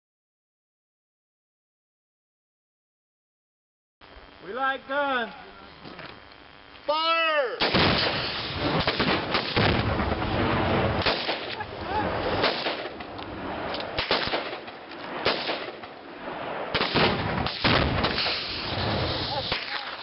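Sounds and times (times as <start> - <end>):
gunshots with echo: 10.5 - 11.5, 12.4 - 13.0, 14.0 - 15.8, 16.4 - 18.6.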